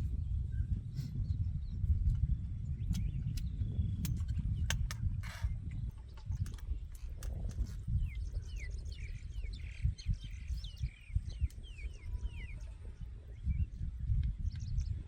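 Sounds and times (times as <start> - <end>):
low thumps and rumble: 0.0 - 12.7
birds chirping: 2.5 - 15.0.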